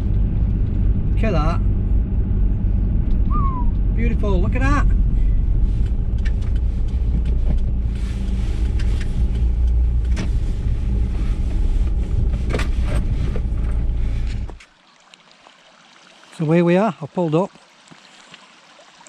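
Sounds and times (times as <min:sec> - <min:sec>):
car engine and road rumble: 0:00.0 - 0:14.7.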